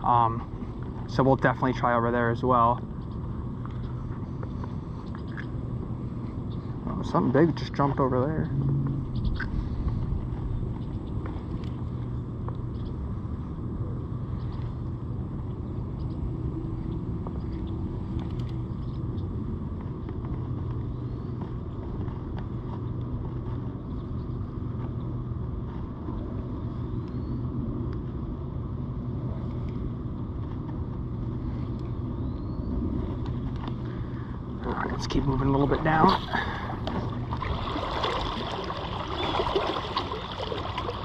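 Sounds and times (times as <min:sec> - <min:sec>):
motor humming: 0:29.4 - 0:41.0.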